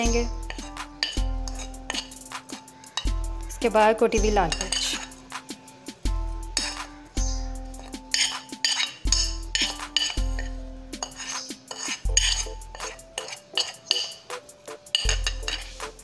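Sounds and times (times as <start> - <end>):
background music with deep bass: 0.0 - 16.0
metal spoon clinking on ceramic: 0.4 - 2.2, 4.5 - 5.2, 7.8 - 14.3, 14.9 - 15.8.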